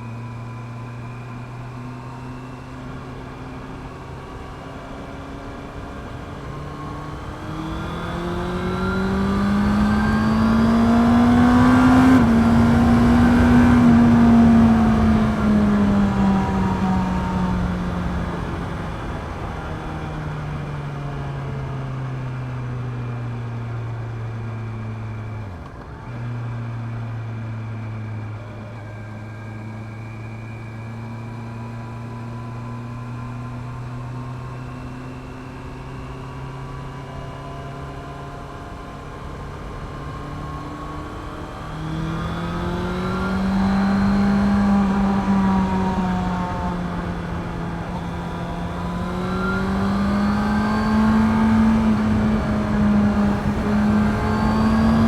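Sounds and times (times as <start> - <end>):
motorcycle engine revving: 2.7 - 20.4, 28.8 - 55.0.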